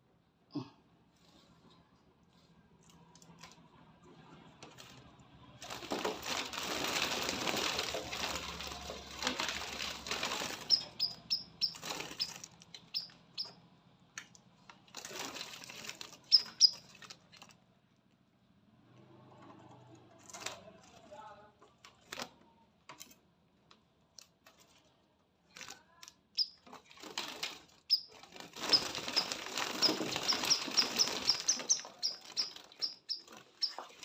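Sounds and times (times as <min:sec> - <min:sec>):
small bird wings fluttering: 0:05.6 - 0:13.1, 0:15.0 - 0:17.5, 0:26.8 - 0:34.0.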